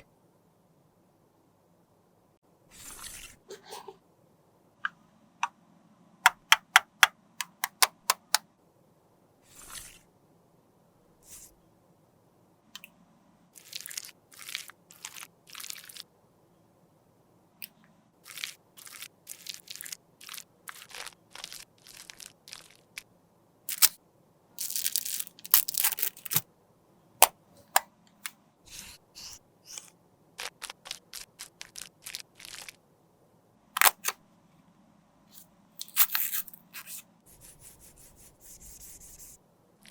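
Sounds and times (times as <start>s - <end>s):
tools scraping lipstick: 35.8s - 37.0s.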